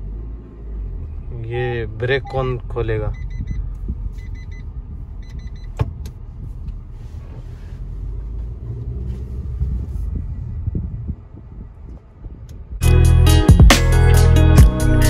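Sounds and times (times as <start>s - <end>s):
car engine low rumble: 0.0s - 15.0s
short electronic beeps: 3.1s - 5.8s.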